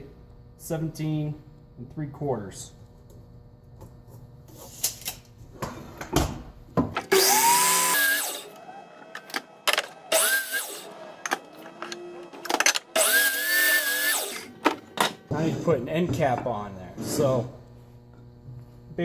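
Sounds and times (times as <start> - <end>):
power saw cutting wood: 7.1 - 15.9.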